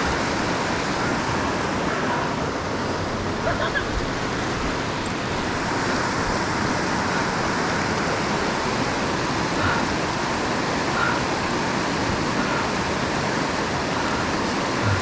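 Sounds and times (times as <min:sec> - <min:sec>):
whitewater rushing over rocks: 0:00.0 - 0:15.0.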